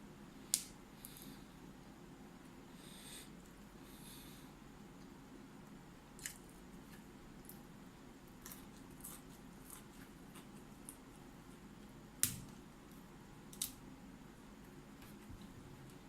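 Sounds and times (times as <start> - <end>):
crunching and chewing broccoli: 6.2 - 11.8.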